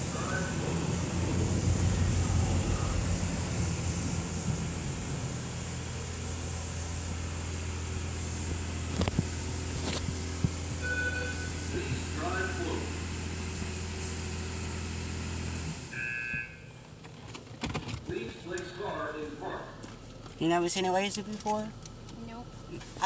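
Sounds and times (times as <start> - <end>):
car engine humming: 0.0 - 23.0.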